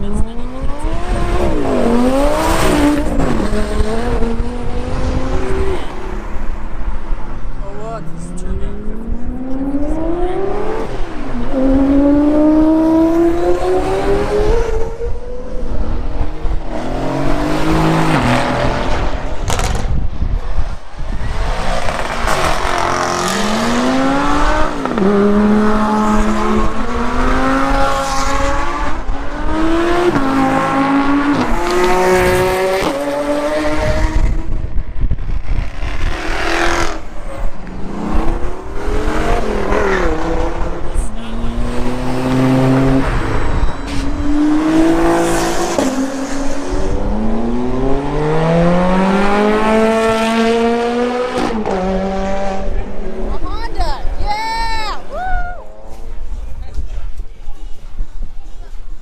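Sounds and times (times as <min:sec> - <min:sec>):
car engine accelerating through gears: 0:08.0 - 0:20.0, 0:21.2 - 0:34.6, 0:35.4 - 0:53.3.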